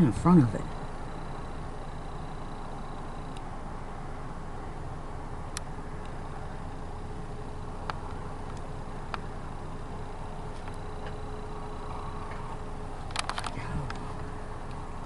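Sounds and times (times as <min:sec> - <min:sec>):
distant engine rumble: 0:00.0 - 0:15.0
faint steady hum: 0:00.0 - 0:15.0
small clicks: 0:13.0 - 0:14.1.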